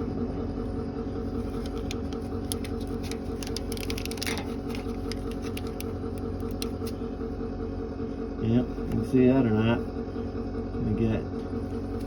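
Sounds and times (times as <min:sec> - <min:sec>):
wiring clicks and rustles: 0:01.5 - 0:07.0.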